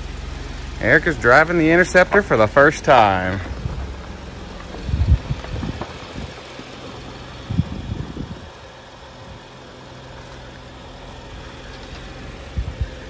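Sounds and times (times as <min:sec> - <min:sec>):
car engine idling: 0:00.0 - 0:13.0
low thumps: 0:01.6 - 0:06.5.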